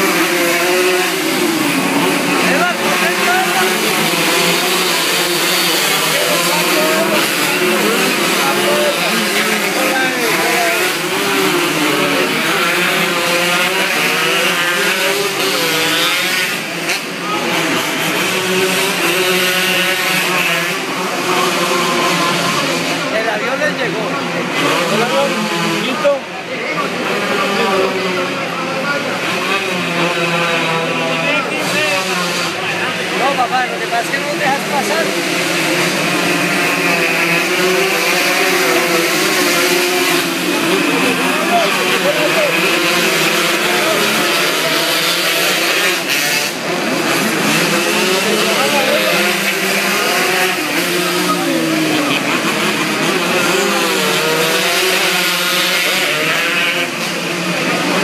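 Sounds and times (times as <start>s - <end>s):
racing motorcycle engines revving: 0.0s - 58.0s.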